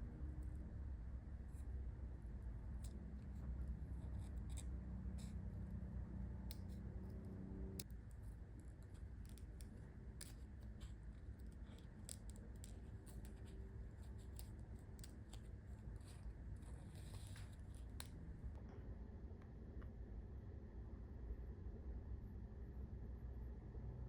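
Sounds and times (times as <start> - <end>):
low steady hum: 0.0 - 24.0
scissors snipping paper: 7.8 - 18.4.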